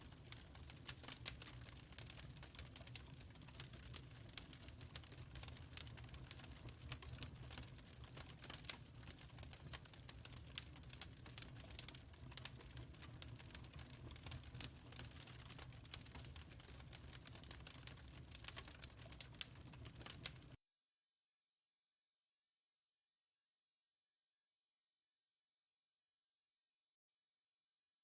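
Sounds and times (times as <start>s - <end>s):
wood fire crackling: 0.0s - 20.6s.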